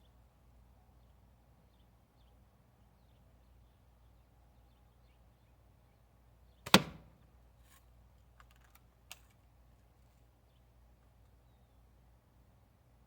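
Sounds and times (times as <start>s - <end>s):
bb gun shot crack: 6.7s - 7.1s.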